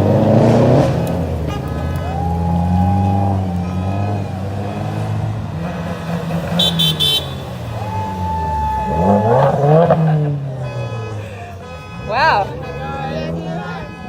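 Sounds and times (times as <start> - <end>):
engine revving: 0.0 - 11.2
cars driving slowly past: 0.0 - 14.0
short high car horn beeps: 1.4 - 2.2, 6.4 - 7.7, 10.4 - 14.0
car horn held: 6.4 - 7.7.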